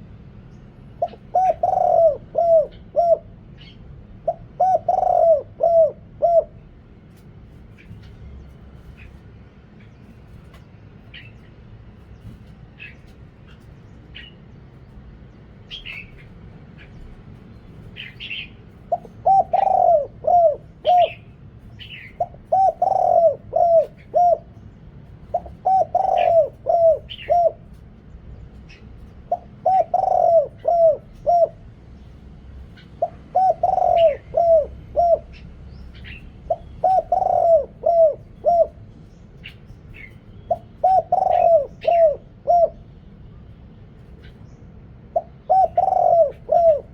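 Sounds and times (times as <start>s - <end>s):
dove cooing: 1.0s - 8.1s, 15.7s - 31.8s, 32.6s - 42.9s, 45.0s - 46.9s
small bird chirping: 9.8s - 19.9s.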